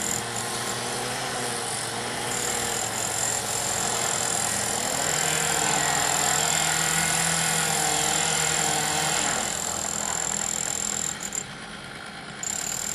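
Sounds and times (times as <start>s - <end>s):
engines running: 0.0s - 12.9s.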